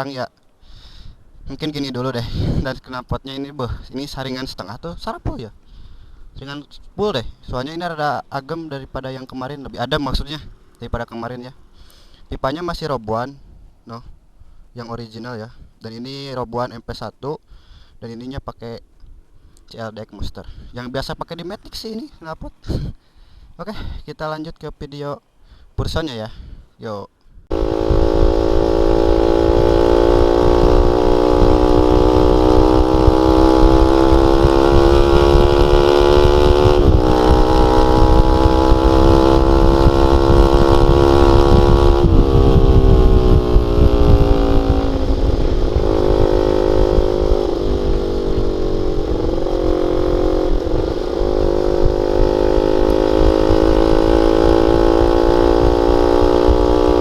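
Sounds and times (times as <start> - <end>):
motorcycle engine revving: 27.5 - 57.0.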